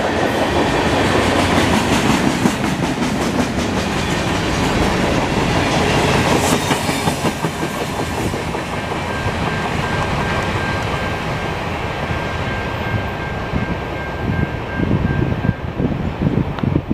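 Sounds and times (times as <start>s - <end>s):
train wheels clicking over rails: 0.0s - 12.2s
wind gusts on microphone: 11.7s - 16.9s.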